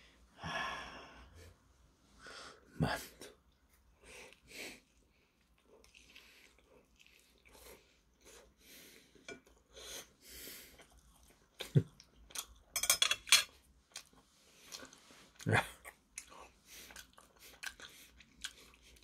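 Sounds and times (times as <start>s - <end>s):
man chewing: 3.5s - 12.7s, 13.5s - 19.0s.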